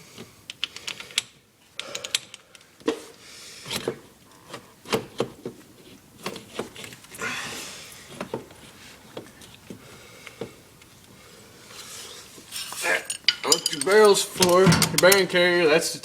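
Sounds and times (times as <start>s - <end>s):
metal bolts clicking and clinking: 0.5s - 2.7s, 12.6s - 15.3s.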